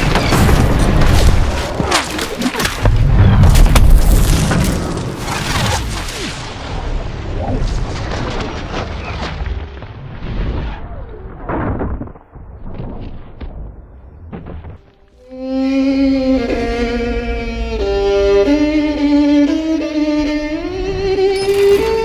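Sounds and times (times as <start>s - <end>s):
debris crashes and impacts: 0.0s - 10.6s
string music: 14.8s - 22.0s.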